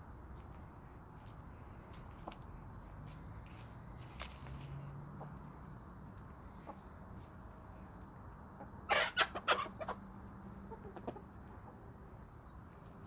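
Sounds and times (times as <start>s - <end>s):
chickens clucking: 8.5s - 11.9s.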